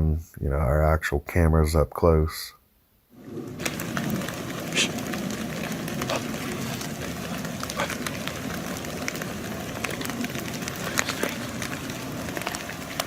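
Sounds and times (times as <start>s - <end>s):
steady outdoor hiss: 0.0s - 13.0s
footsteps crunching through leaves: 3.6s - 13.0s.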